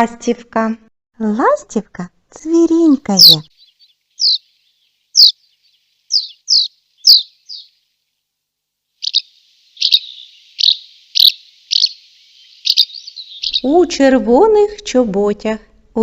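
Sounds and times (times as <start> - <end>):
swallow twittering: 3.2 - 7.8, 9.0 - 14.0.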